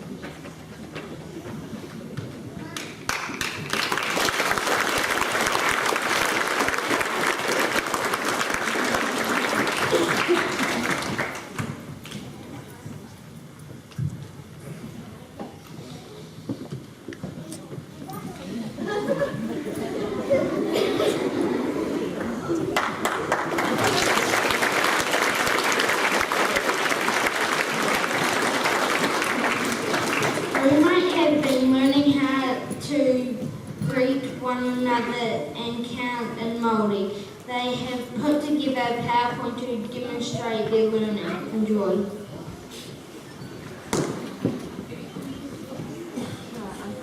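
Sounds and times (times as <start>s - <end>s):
audience clapping: 2.7s - 12.2s, 22.1s - 31.3s.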